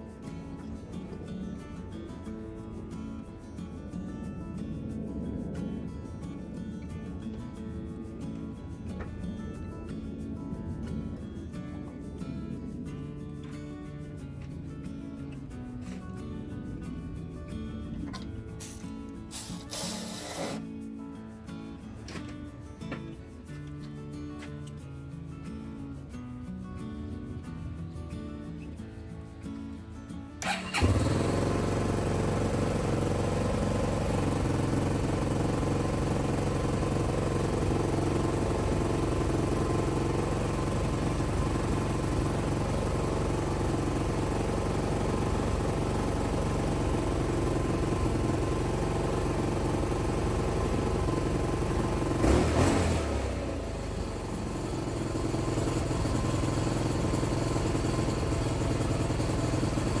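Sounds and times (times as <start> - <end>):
motorcycle engine running: 15.7 - 20.7, 30.4 - 60.0.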